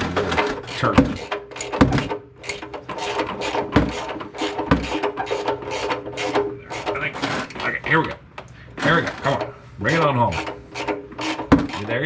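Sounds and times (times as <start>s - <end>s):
dull knocks: 0.4s - 2.2s, 3.5s - 5.5s.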